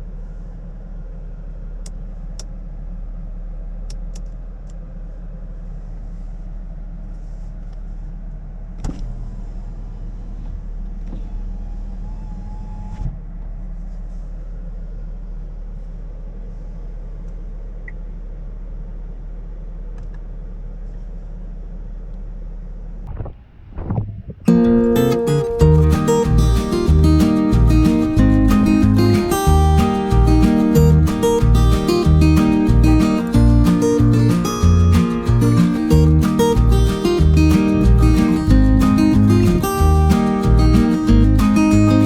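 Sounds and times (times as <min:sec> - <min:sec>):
car engine idling: 0:23.1 - 0:42.0.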